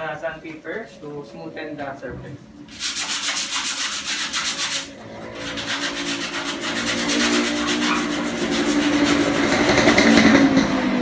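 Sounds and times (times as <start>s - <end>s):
sandpaper rasping on metal: 2.7s - 10.4s.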